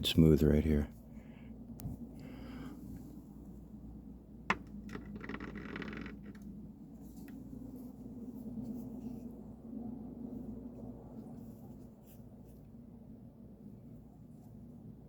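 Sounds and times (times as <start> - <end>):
low steady hum: 0.0 - 15.0
rubbing and rustling: 4.5 - 9.6.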